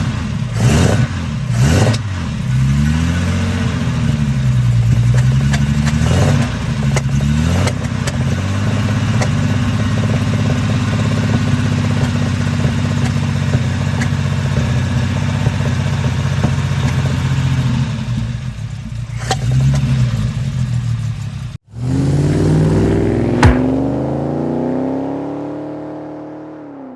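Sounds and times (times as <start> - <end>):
car engine accelerating: 0.0 - 26.9
sharp knock: 23.3 - 24.1.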